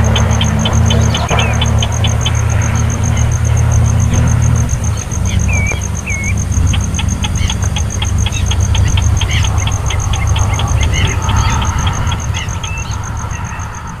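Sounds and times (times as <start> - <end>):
curling bird chirps: 0.0 - 14.0
high pulsing tone: 0.0 - 14.0
high ticking peeps: 0.0 - 14.0
loud low rumble: 0.0 - 14.0.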